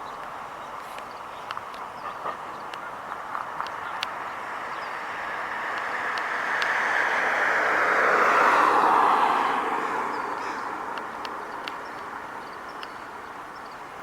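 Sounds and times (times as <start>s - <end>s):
car driving past: 4.2s - 11.0s.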